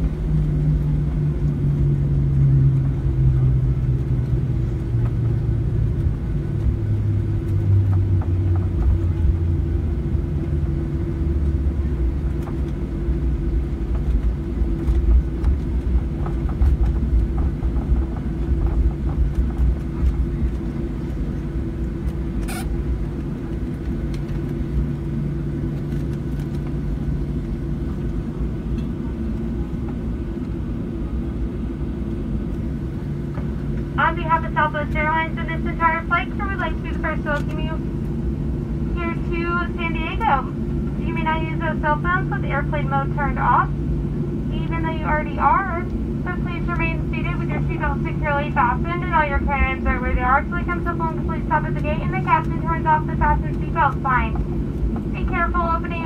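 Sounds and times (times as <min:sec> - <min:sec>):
low cabin rumble: 0:00.0 - 0:56.0
light cabin rattles: 0:13.6 - 0:22.3.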